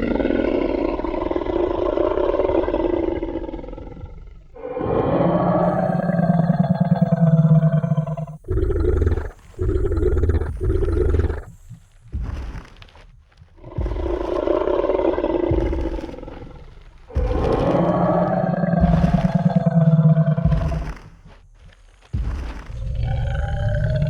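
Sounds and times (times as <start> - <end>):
deep growls: 0.0 - 13.0, 13.6 - 21.4, 22.2 - 24.0
low thud: 12.1 - 23.0.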